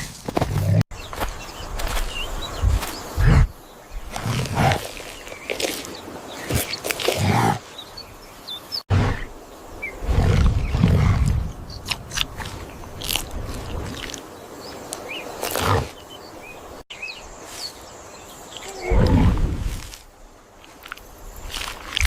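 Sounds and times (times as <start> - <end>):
small birds chirping: 0.6 - 19.4
big cat growling: 18.6 - 19.6.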